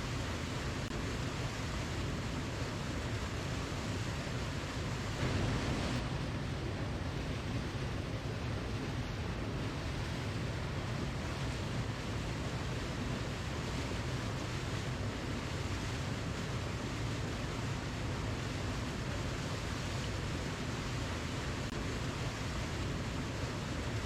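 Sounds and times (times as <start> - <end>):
waterfall rushing: 2.1 - 15.5.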